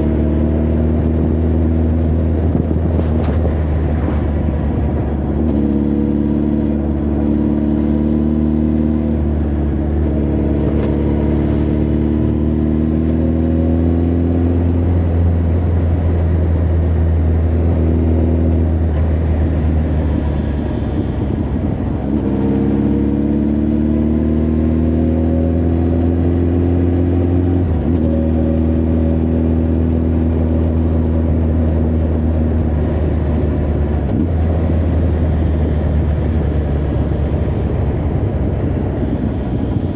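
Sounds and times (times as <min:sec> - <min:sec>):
motorcycle engine under way: 0:00.0 - 0:39.9
wind rush: 0:01.1 - 0:06.2, 0:09.1 - 0:13.5, 0:17.3 - 0:22.8, 0:31.2 - 0:39.9.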